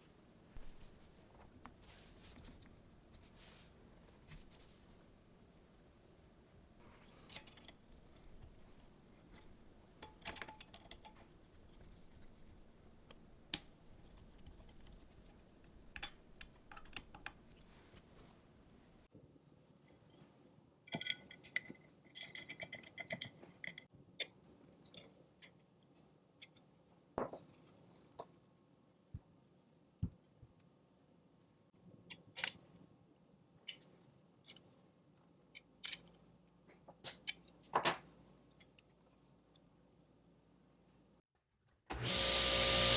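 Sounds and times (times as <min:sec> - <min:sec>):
small hard parts clicking and tapping: 0:06.9 - 0:18.1, 0:20.9 - 0:27.4, 0:35.5 - 0:38.9.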